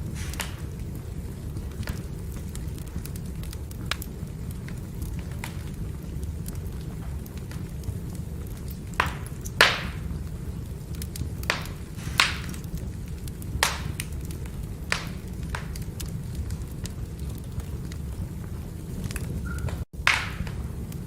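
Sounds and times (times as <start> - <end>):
fire rumbling: 0.0 - 21.0
firewood crackling and popping: 0.0 - 21.0.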